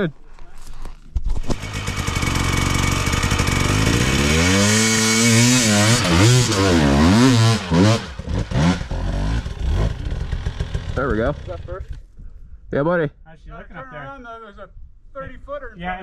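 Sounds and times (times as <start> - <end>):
dirt bike engine revving: 1.5 - 12.0.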